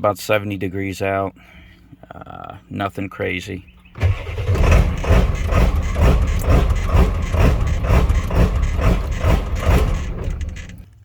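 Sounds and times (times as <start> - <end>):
diesel engine idling roughly: 4.0 - 10.8.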